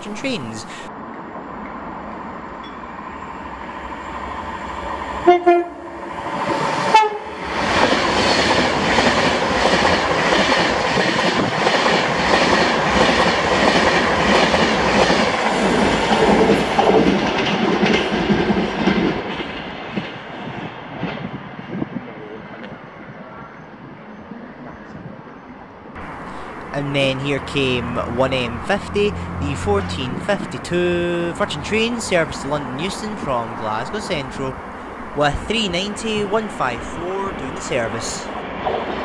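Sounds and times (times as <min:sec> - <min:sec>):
train rushing past: 0:00.0 - 0:22.0, 0:26.0 - 0:39.0
train horn two-note: 0:05.2 - 0:06.1, 0:06.9 - 0:07.4.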